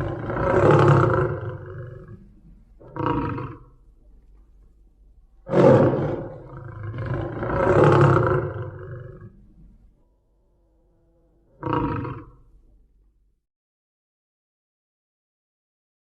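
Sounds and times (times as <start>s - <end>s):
tiger roaring: 0.0s - 3.7s, 5.4s - 9.6s, 10.4s - 12.5s.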